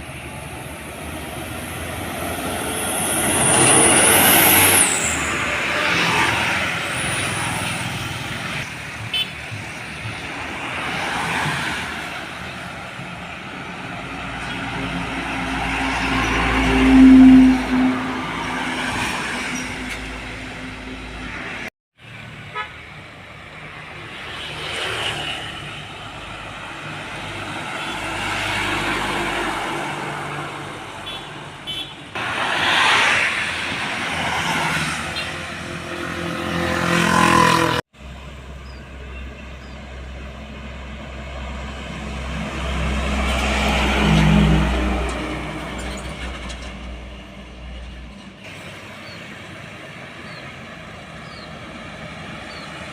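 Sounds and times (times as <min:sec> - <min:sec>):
heavy vehicles driving past: 0:00.0 - 0:52.9
horn toots: 0:15.7 - 0:20.2.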